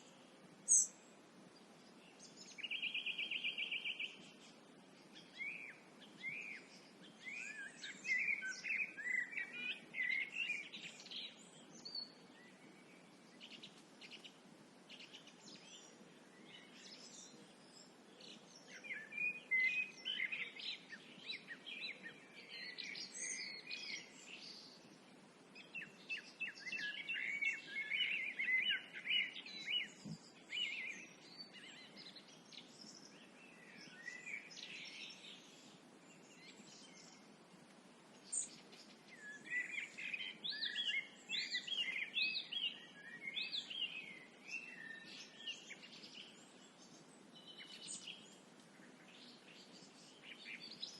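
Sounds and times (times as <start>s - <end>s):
faint steady background noise: 0.0s - 50.9s
songbirds chirping and warbling: 0.0s - 50.9s.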